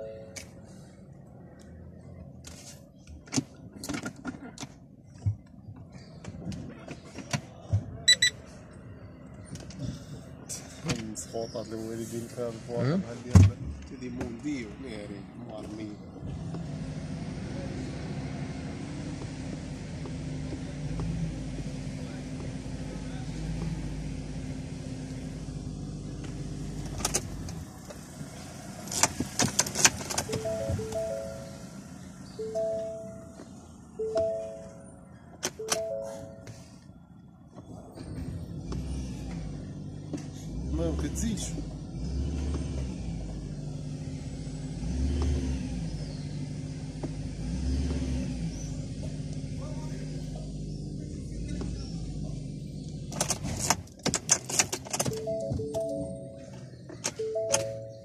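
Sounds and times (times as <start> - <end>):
car engine running: 0.0 - 58.0
quick high electronic beeps: 8.1 - 8.4
sharp clicks and rattles: 28.8 - 31.0, 53.0 - 58.0
scattered clicks and knocks: 28.9 - 31.0
chime-like tone: 32.4 - 33.3, 55.2 - 56.5.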